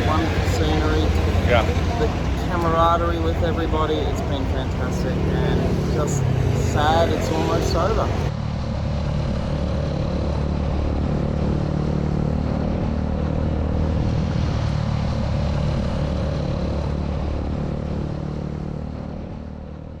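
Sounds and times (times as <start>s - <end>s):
motorcycle engine running steadily: 0.0s - 13.6s.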